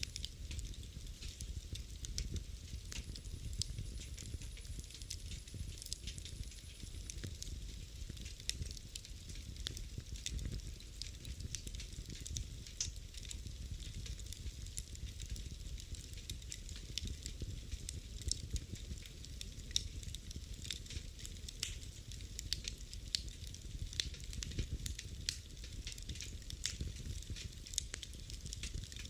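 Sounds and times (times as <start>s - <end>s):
fire crackling and popping: 0.0s - 29.0s
fire rumbling: 0.0s - 29.0s.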